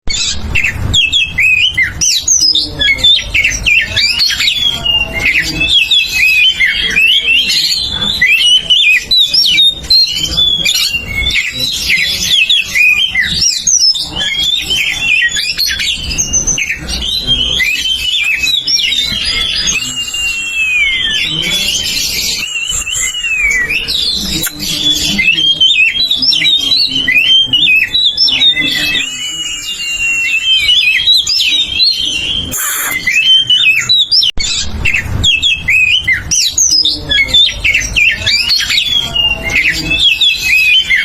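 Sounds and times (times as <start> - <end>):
bird singing whistles and chirps: 0.1 - 41.0.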